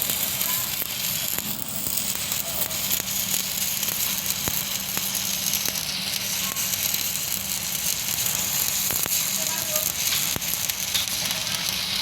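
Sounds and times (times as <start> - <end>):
welding arc crackling: 0.0 - 12.0
welding arc pops: 0.0 - 12.0.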